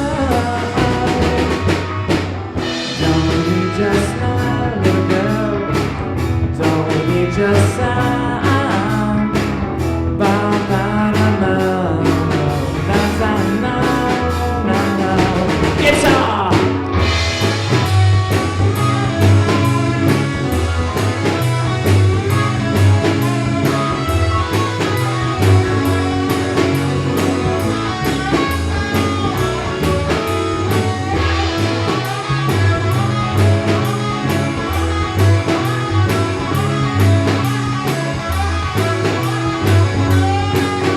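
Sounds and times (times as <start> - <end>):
person singing: 0.0 - 1.8, 2.7 - 17.1
live rock band playing: 0.0 - 40.9.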